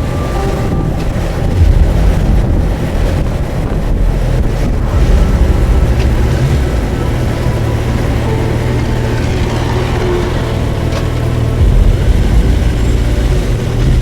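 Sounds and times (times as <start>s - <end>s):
motorcycle engine running: 0.0s - 14.0s
wind buffeting microphone: 0.0s - 14.0s.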